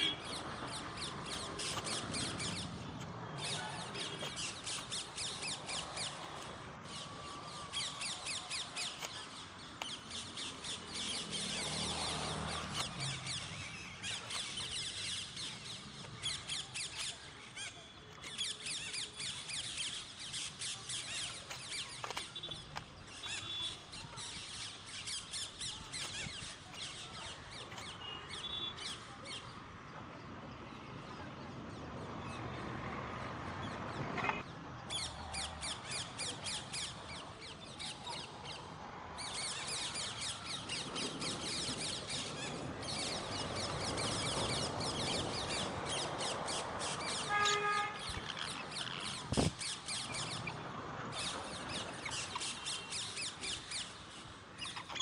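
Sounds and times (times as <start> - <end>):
parrots chattering: 43.3 - 50.6, 54.6 - 55.0
parrot squawk: 47.4 - 49.2.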